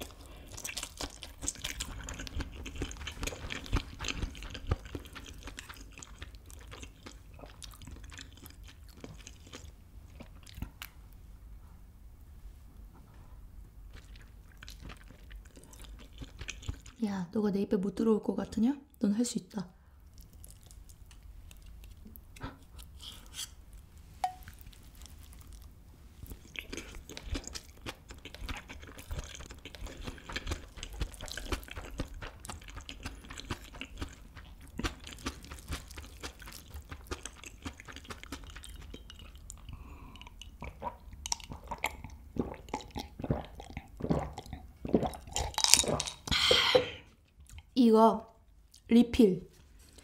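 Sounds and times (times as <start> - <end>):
wet chewing with crunches: 0.0 - 11.0, 13.8 - 17.0, 20.1 - 23.5, 24.3 - 46.2.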